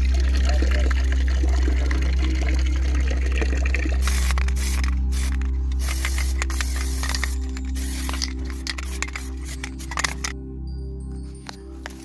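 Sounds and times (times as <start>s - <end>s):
low hum: 0.0s - 11.0s
background music: 0.0s - 12.0s
water spraying and splashing: 3.8s - 10.3s.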